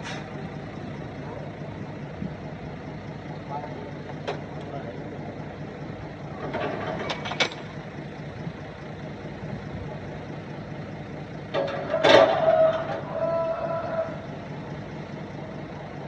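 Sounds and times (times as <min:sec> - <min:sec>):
diesel engine of heavy machinery: 0:00.0 - 0:16.0
short metallic clanks: 0:11.5 - 0:13.0.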